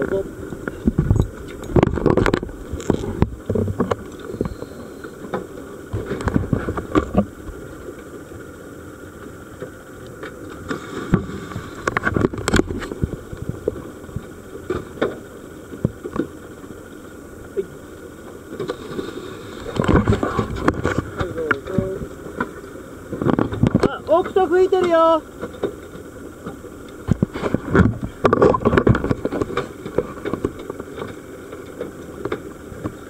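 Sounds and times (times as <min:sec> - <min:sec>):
boat engine rumble: 0:00.0 - 0:33.0
wind on microphone: 0:00.6 - 0:04.5.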